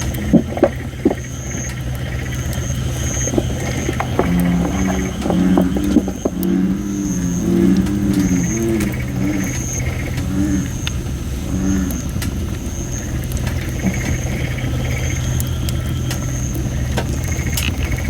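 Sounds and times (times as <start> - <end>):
bullfrogs calling: 0.0 - 18.0
campfire crackling and popping: 0.0 - 18.0
steady low rumble: 0.0 - 18.0.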